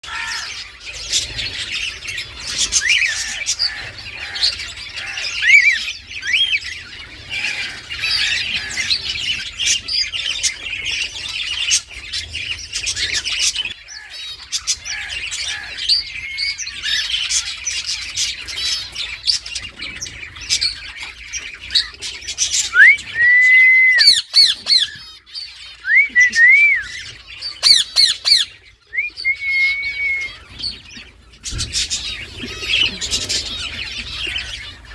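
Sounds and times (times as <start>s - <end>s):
parakeet whistled notes: 22.8s - 24.6s, 27.6s - 30.4s
parakeet squawking and chattering: 24.0s - 26.2s, 26.9s - 34.9s.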